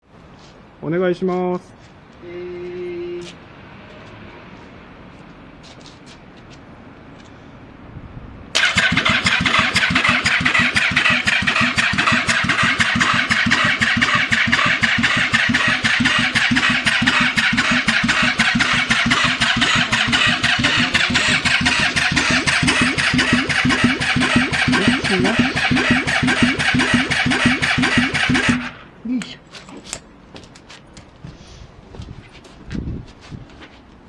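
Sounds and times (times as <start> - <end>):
engine cranking by starter motor: 8.6 - 28.8.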